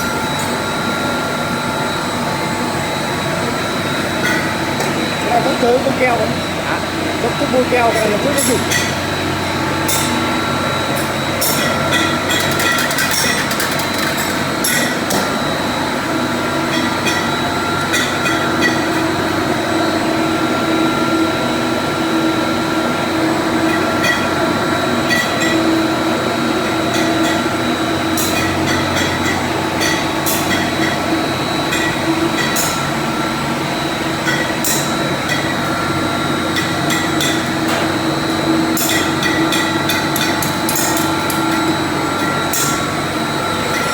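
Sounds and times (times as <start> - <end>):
steady hum: 0.0 - 43.9.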